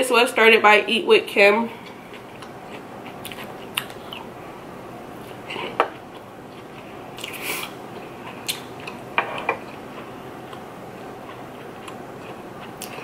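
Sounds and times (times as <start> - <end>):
person chewing rice: 1.8 - 4.3, 5.2 - 13.0.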